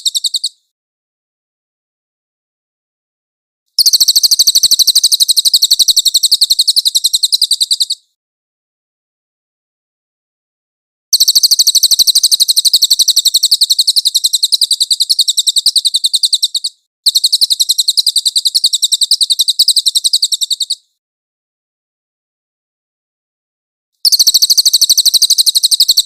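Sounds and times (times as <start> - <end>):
songbird fast rolling trill: 0.0 - 0.6, 3.8 - 8.0, 11.2 - 20.8, 24.0 - 26.0.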